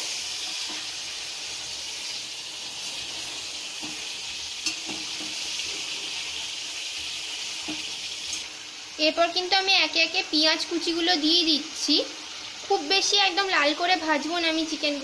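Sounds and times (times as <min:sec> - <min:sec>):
chicken sizzling in hot oil: 0:00.0 - 0:15.0
spatula tapping pan: 0:03.8 - 0:05.4.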